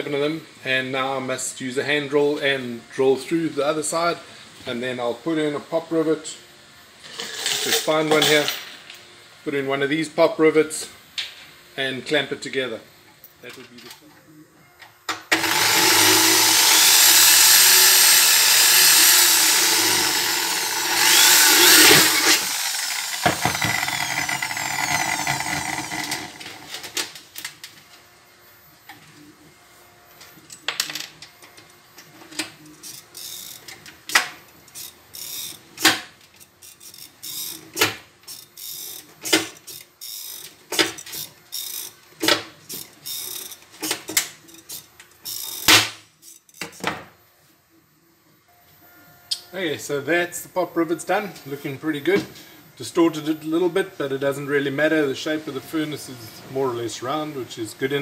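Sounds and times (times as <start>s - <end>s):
electric drill drilling sheet steel: 15.3s - 26.7s.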